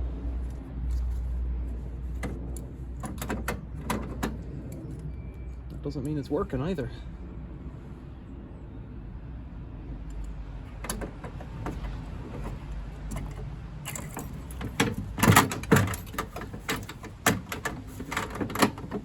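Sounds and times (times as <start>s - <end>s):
tools and metal parts clattering: 1.8s - 6.2s, 10.6s - 19.0s.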